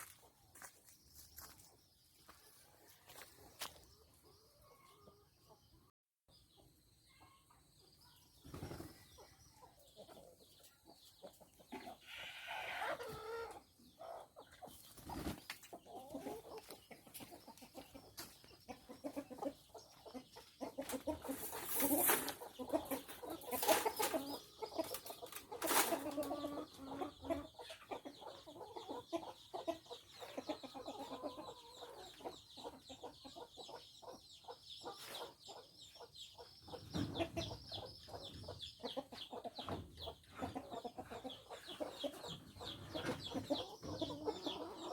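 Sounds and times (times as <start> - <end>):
chickens clucking: 0.0 - 44.9
chicken squawk: 11.8 - 13.6.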